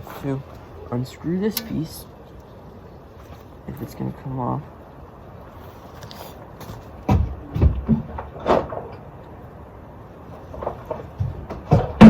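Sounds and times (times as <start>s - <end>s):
engine parts knocking and clicking: 10.5s - 12.0s.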